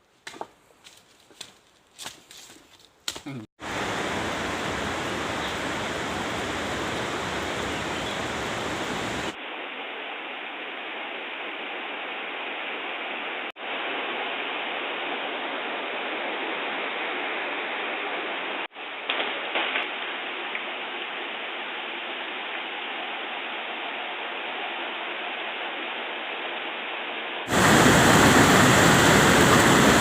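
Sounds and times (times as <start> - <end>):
waterfall rushing: 3.6 - 9.4, 27.5 - 30.0.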